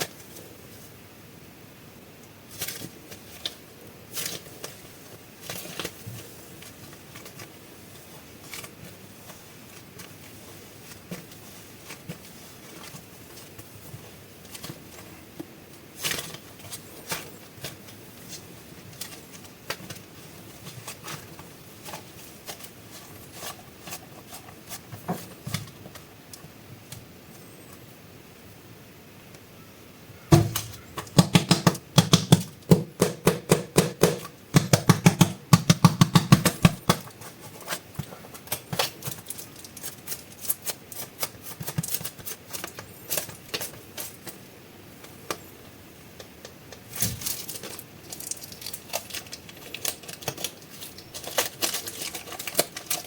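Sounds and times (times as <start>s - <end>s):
plastic packaging crinkling: 36.0s - 45.5s, 46.1s - 53.0s.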